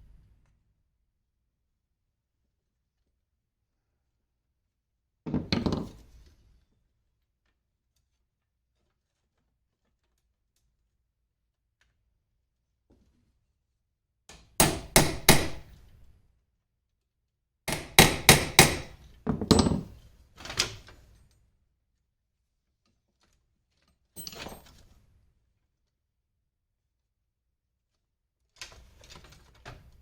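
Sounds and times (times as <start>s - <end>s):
hammer striking metal punch: 14.6s - 15.8s, 17.7s - 19.0s.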